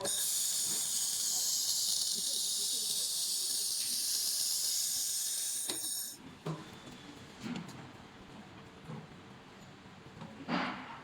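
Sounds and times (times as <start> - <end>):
laser welder hissing: 0.0 - 6.2.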